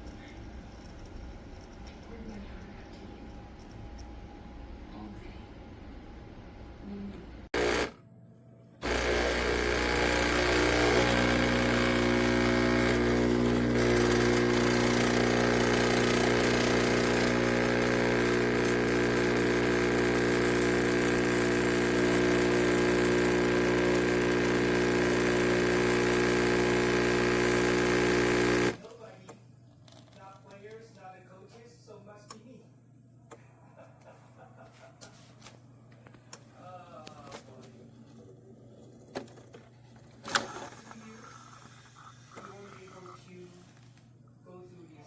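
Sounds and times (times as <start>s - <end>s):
appliance motor buzzing hum: 7.5s - 8.0s, 8.8s - 28.8s.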